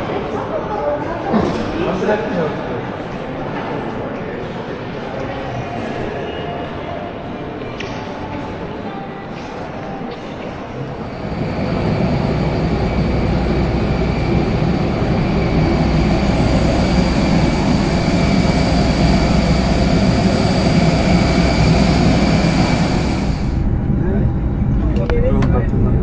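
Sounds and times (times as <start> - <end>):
high jet whine: 10.9 - 25.0
jet airliner rumble: 10.9 - 26.0.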